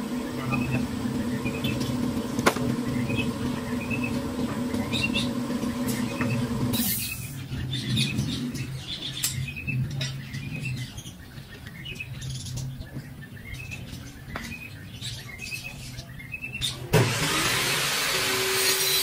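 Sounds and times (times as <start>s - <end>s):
steady hum: 0.0s - 10.0s
small birds chirping: 0.2s - 16.9s.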